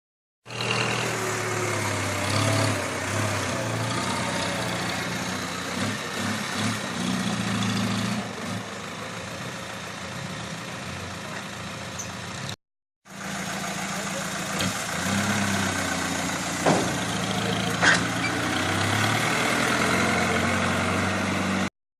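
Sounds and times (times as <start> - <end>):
dump truck engine droning: 0.5 - 21.7.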